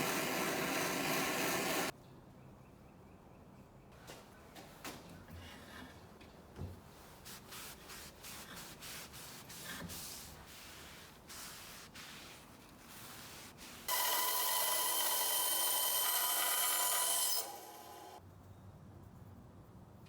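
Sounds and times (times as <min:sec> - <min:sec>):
rubbing strokes on a workpiece: 0:06.9 - 0:17.8.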